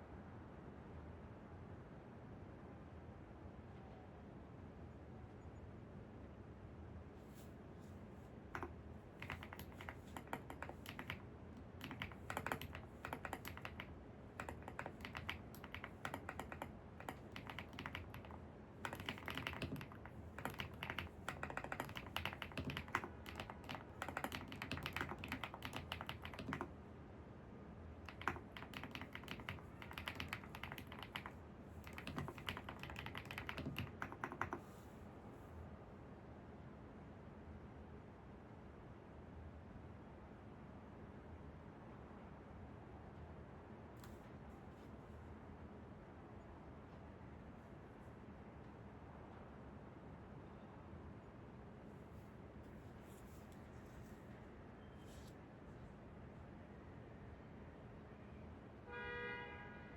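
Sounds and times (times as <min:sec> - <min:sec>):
low background hum: 0:00.0 - 0:59.9
typing on computer keyboard: 0:08.5 - 0:26.8, 0:28.0 - 0:34.8.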